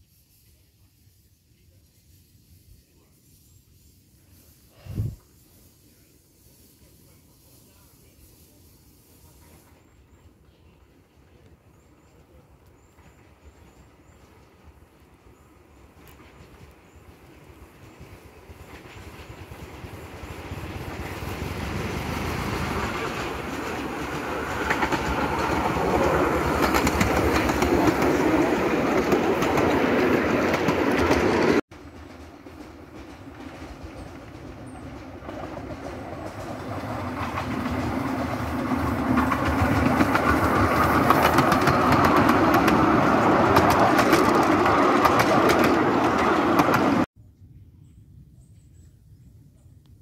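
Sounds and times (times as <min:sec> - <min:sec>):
train wheels clattering on rails: 0:15.8 - 0:47.1.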